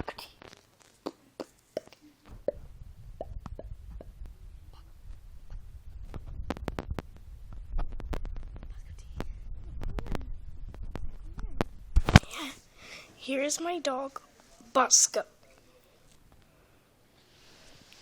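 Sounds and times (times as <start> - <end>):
low rumble: 2.3 - 12.2.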